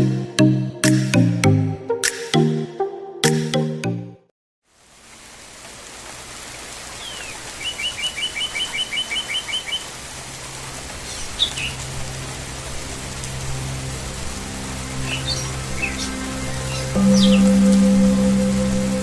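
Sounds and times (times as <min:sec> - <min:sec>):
outdoor ambience hiss: 0:04.6 - 0:19.0
songbird trilling: 0:07.0 - 0:09.8, 0:16.7 - 0:17.5.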